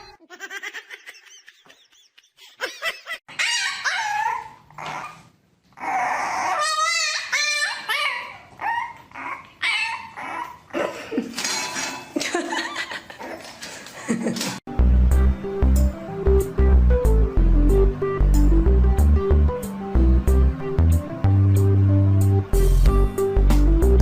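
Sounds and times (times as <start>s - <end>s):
dog making high-pitched calls: 5.8s - 10.6s.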